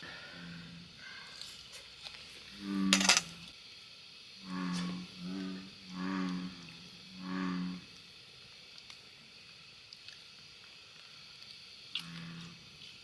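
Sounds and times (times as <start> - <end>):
bullfrog croaking: 2.5 - 3.5, 4.4 - 8.0, 12.0 - 12.7.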